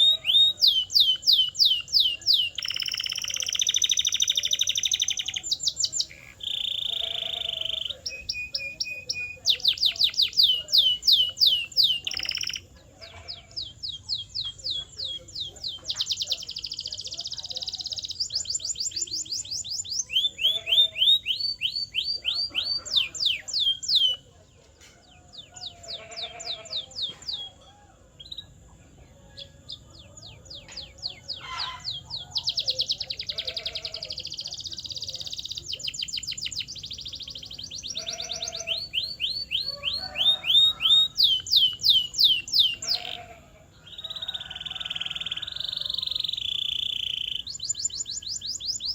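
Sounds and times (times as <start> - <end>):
canary singing rapid trills: 0.0 - 24.5, 25.1 - 28.7, 29.3 - 48.9.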